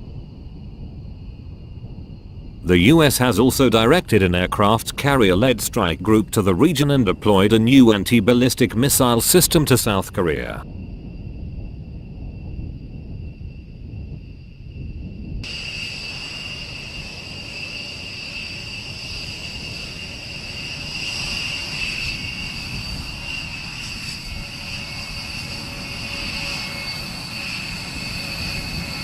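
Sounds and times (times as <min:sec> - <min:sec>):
jet engines whining: 0:02.6 - 0:10.6, 0:15.4 - 0:29.0
rushing noise: 0:02.6 - 0:10.6.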